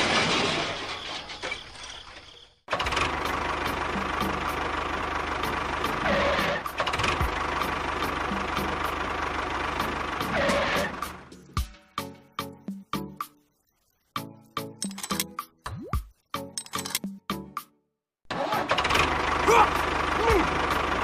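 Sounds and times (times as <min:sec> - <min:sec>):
engine ticking over: 0:02.7 - 0:11.5, 0:18.4 - 0:21.0.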